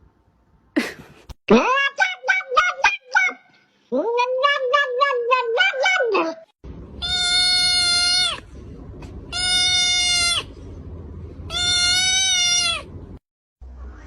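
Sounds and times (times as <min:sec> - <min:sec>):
cat meowing: 0:04.0 - 0:06.4, 0:07.0 - 0:08.4, 0:09.3 - 0:10.5, 0:11.5 - 0:12.9
low rumble: 0:08.2 - 0:09.4, 0:10.4 - 0:11.6.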